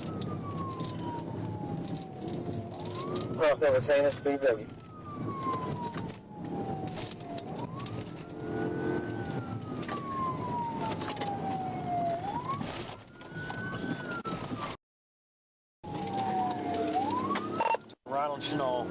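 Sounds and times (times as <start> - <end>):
car engine and road noise: 0.0 - 14.8, 15.8 - 18.9
police siren wailing: 0.0 - 14.8, 15.8 - 18.9.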